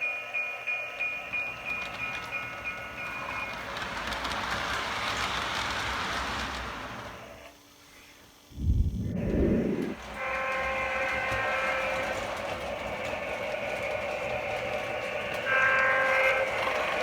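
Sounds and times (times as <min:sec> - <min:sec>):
multi-note train chime: 0:00.0 - 0:04.8, 0:10.1 - 0:17.0
model train running noise: 0:00.0 - 0:07.8, 0:09.2 - 0:17.0.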